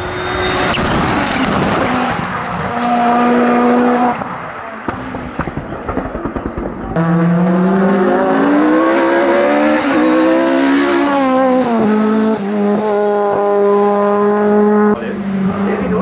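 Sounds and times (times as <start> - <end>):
engine crackle: 0.0 - 8.3
race car engine at full throttle: 0.0 - 16.0.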